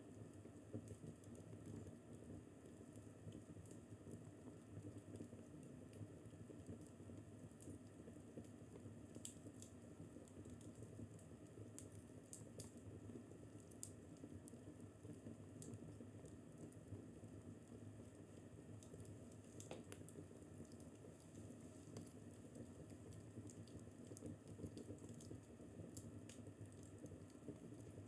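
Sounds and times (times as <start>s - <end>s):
fireplace crackling: 8.7s - 9.7s, 13.5s - 17.8s, 18.4s - 28.0s.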